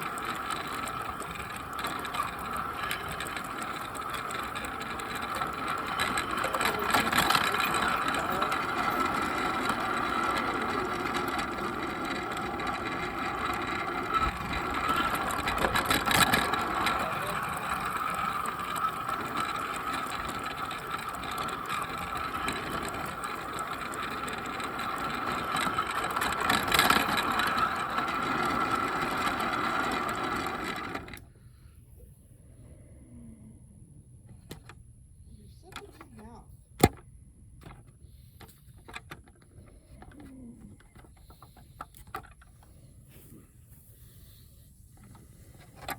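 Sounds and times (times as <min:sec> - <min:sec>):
track clacks: 0:00.0 - 0:31.2
model train motor whirring: 0:00.0 - 0:31.4, 0:44.0 - 0:45.9.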